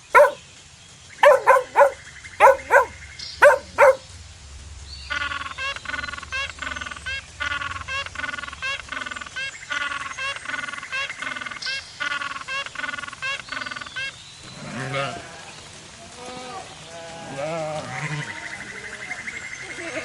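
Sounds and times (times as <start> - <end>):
dog barking: 0.0 - 0.4, 1.2 - 4.0.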